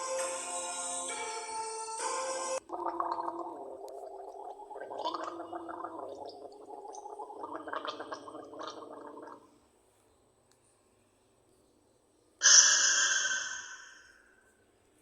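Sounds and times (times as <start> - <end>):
music: 0.0 - 2.6
water gurgling and bubbling: 2.6 - 9.5.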